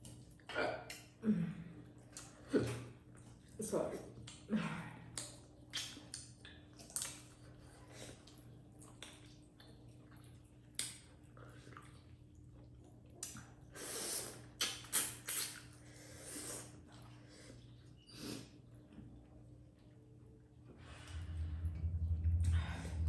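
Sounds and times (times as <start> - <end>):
wet chewing and smacking: 5.1 - 13.7, 14.4 - 15.8.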